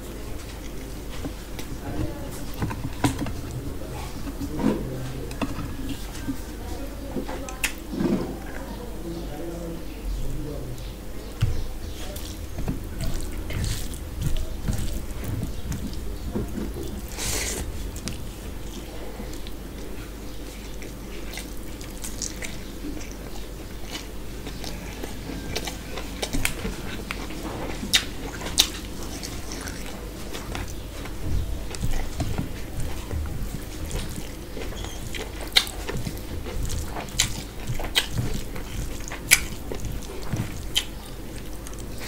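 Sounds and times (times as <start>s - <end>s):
wet chewing and mouth smacks: 11.3s - 42.0s.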